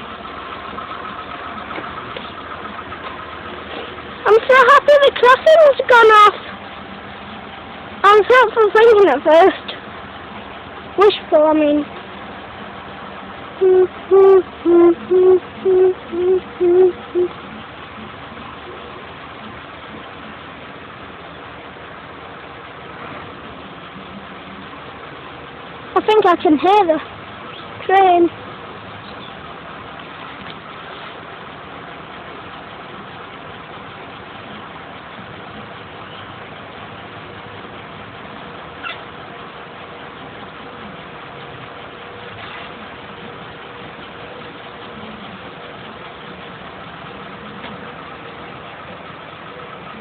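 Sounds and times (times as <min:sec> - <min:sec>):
vehicle engines idling: 0:00.0 - 0:50.0
person singing doo notes: 0:13.6 - 0:17.4.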